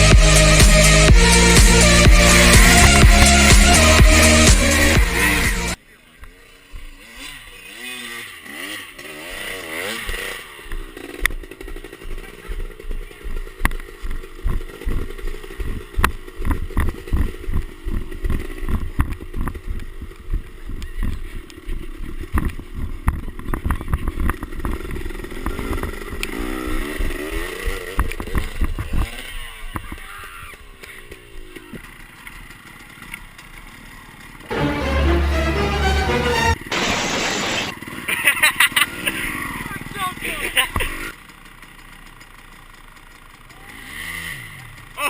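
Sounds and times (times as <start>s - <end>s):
heavy low rumble: 0.0s - 5.1s
dirt bike engine revving: 0.0s - 20.1s, 24.1s - 29.6s, 43.7s - 45.0s.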